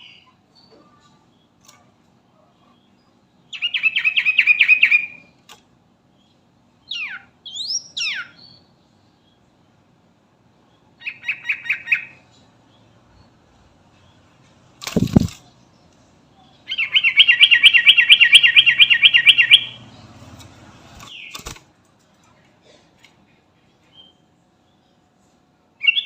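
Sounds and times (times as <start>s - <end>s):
bird chattering calls: 14.8s - 15.4s.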